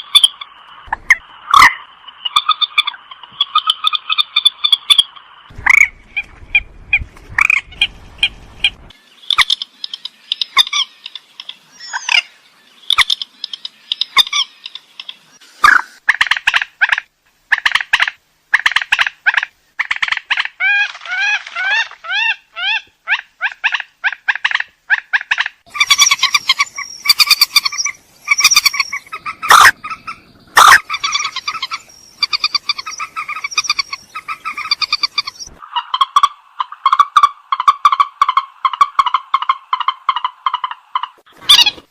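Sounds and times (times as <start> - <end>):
swamphen harsh calls: 18.6 - 41.9.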